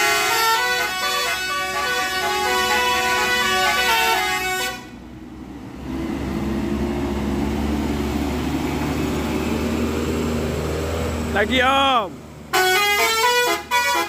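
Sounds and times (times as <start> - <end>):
musical bus horn tune: 0.0 - 5.0, 12.5 - 14.0
heavy vehicle engine running: 0.0 - 14.0.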